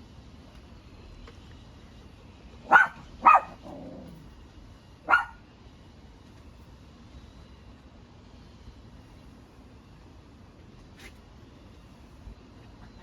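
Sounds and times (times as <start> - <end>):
dog barking: 2.6 - 3.8, 5.0 - 5.4.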